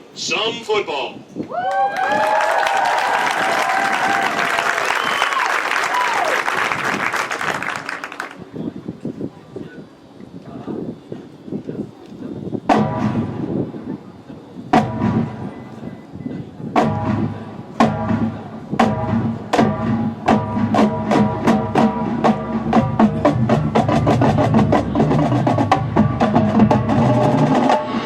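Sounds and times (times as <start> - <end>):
marching band horn and drum hits: 12.7 - 13.7, 14.8 - 15.9, 16.7 - 28.0.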